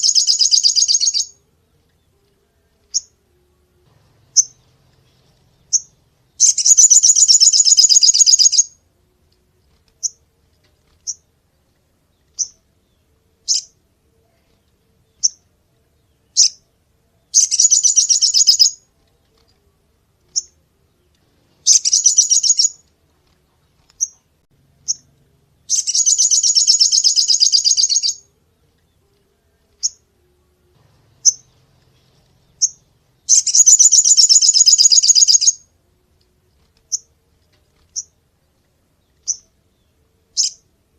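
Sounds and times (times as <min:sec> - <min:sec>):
bird rattling trills: 0:04.3 - 0:08.7, 0:17.4 - 0:18.8, 0:21.6 - 0:22.8, 0:25.7 - 0:28.2, 0:31.1 - 0:35.6.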